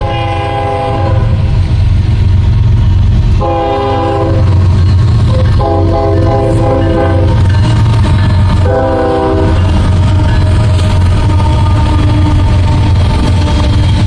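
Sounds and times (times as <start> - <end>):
locomotive air horn blasts: 0.0 - 1.4, 3.4 - 4.5, 5.3 - 7.4, 8.6 - 13.2
diesel engines rumbling: 0.0 - 14.0.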